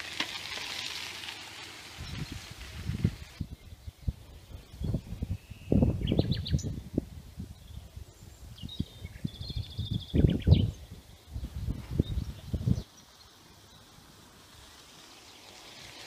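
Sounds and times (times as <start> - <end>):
small birds singing: 2.0 - 14.2.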